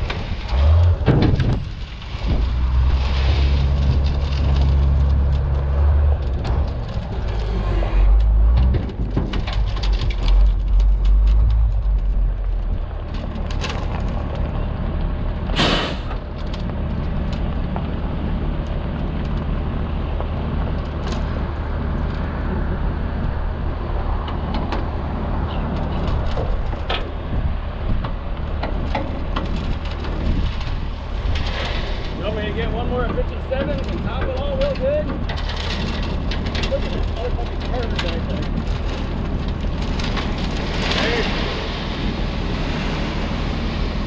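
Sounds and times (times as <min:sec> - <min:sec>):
short burst of hiss: 0:15.6 - 0:16.2.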